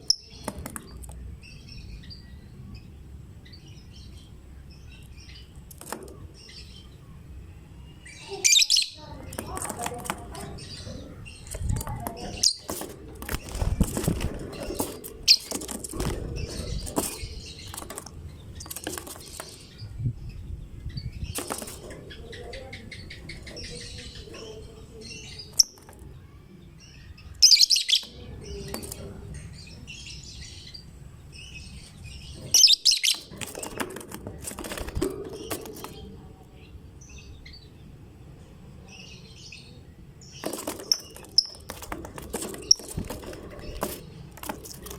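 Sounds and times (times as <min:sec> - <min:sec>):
birds chirping: 0:00.0 - 0:44.9
wing flapping: 0:11.4 - 0:19.7, 0:21.3 - 0:22.2, 0:33.1 - 0:36.0, 0:40.4 - 0:44.9.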